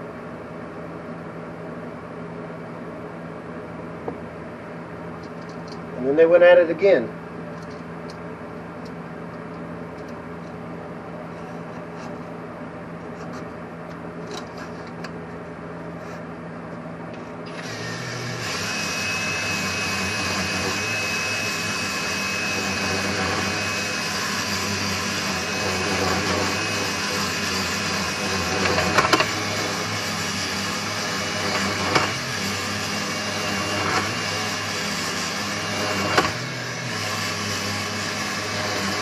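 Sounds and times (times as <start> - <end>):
power drill honing a cylinder: 17.5 - 39.0.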